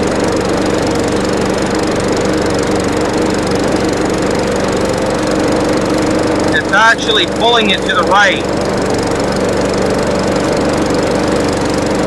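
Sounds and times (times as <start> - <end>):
lawnmower engine running: 8.5 - 12.0.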